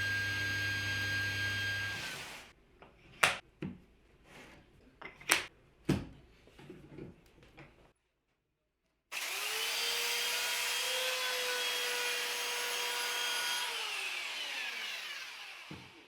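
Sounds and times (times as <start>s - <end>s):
power tool motor whining: 0.0s - 2.5s, 9.2s - 16.0s.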